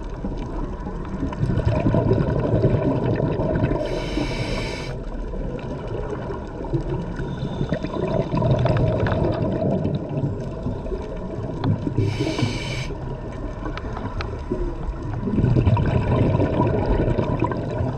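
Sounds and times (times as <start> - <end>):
exhaled bubbles gurgling: 0.0 - 17.9
regulator inhalation hiss: 3.8 - 5.0, 12.0 - 13.0.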